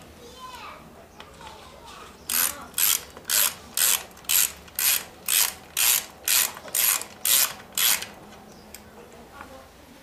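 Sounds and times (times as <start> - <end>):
ratchet wrench clicking: 2.3 - 8.2.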